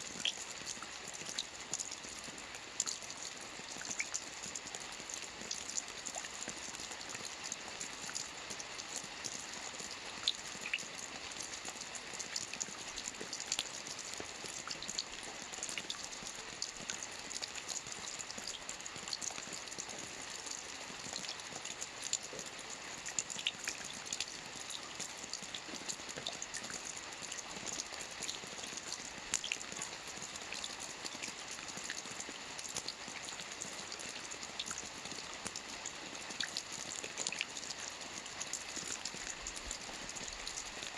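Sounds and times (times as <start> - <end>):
rain hissing on water: 0.0 - 40.9
raindrop splashes: 0.1 - 40.9.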